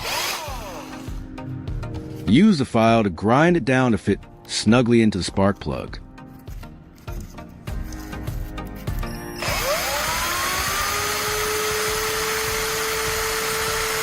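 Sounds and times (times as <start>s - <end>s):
electric drill whining: 0.0s - 1.4s, 9.0s - 14.0s.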